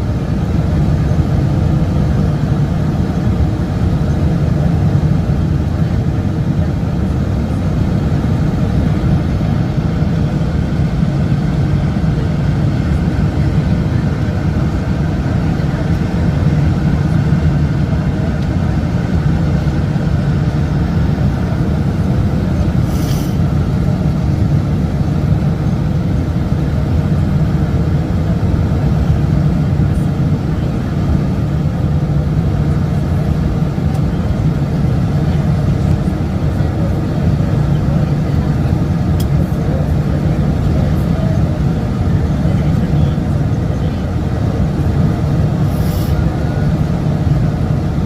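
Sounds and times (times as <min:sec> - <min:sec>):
jet engines rumbling in cabin: 0:00.0 - 0:48.0
rushing air: 0:20.7 - 0:27.7, 0:44.2 - 0:48.0
brief hiss: 0:22.8 - 0:23.4, 0:45.7 - 0:46.2.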